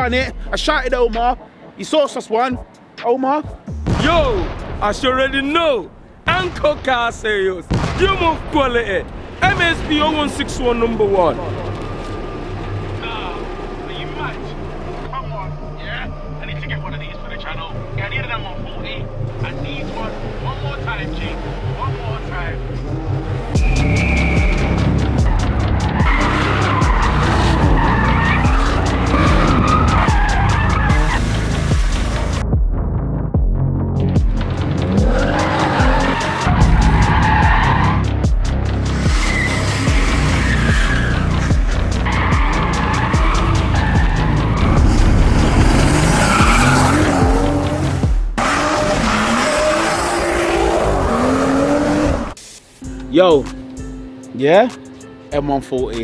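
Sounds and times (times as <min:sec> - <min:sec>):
background music beat: 0:00.0 - 0:05.8, 0:21.4 - 0:49.4, 0:50.4 - 0:56.0
car engine rumble: 0:03.7 - 0:52.4
car tyres squealing: 0:04.0 - 0:32.4, 0:34.4 - 0:52.4.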